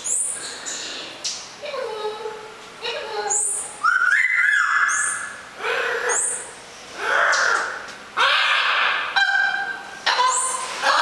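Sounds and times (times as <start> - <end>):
bird giving ghostly calls: 3.8 - 11.0.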